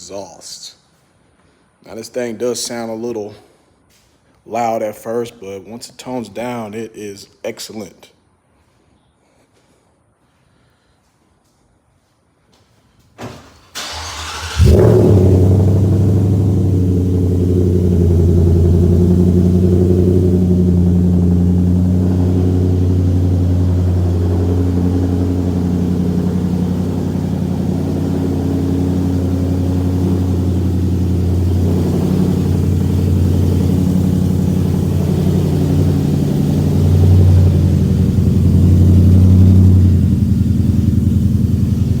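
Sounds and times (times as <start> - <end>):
truck engine idling: 13.8 - 42.0.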